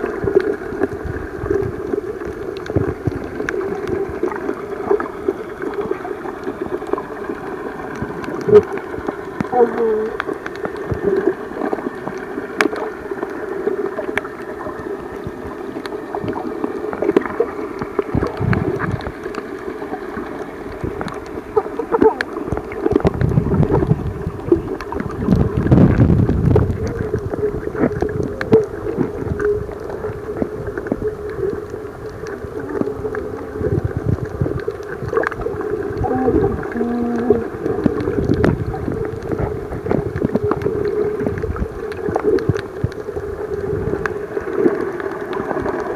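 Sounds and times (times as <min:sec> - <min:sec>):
water sloshing and gurgling: 0:00.0 - 0:45.9.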